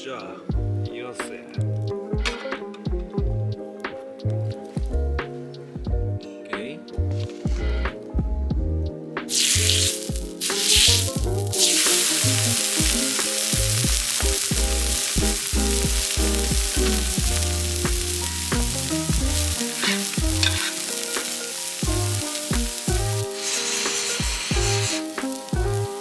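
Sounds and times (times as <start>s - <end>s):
background music with bass: 0.0s - 26.0s
food sizzling in a pan: 9.3s - 26.0s.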